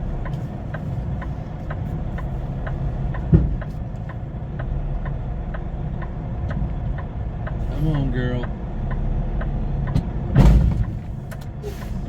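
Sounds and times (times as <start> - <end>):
even engine ticking: 0.0 - 11.6
truck engine idling: 0.0 - 12.0
short thump: 3.2 - 3.8, 10.0 - 12.0.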